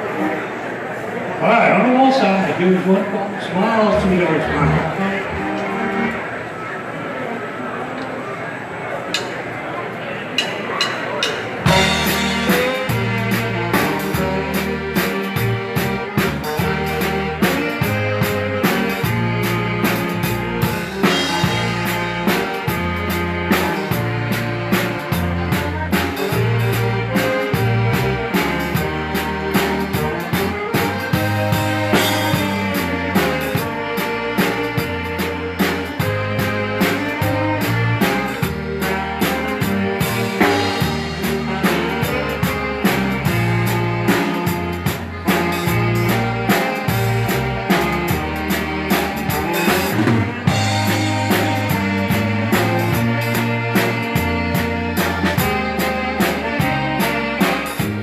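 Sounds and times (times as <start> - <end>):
live dance band playing: 0.0 - 6.7, 10.4 - 58.0.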